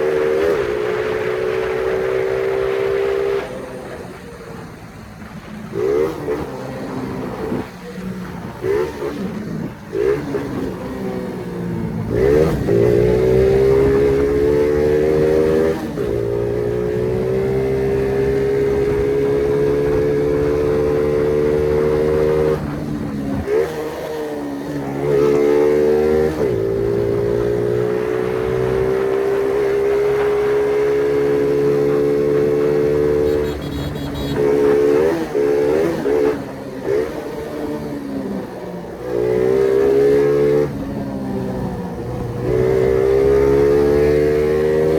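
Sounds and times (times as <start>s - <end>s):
moped engine revving: 0.0s - 44.9s.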